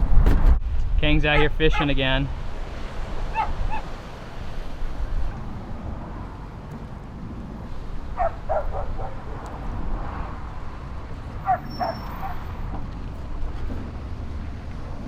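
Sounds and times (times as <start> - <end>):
steady low rumble: 0.0 - 15.0
animal yelping: 3.3 - 4.0, 8.1 - 9.4, 11.4 - 12.6.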